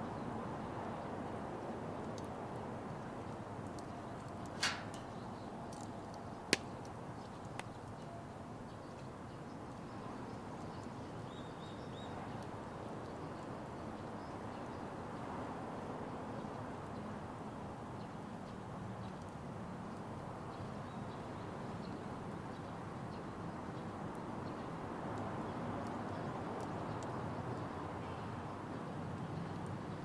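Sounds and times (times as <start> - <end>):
fire crackling: 3.6 - 7.9.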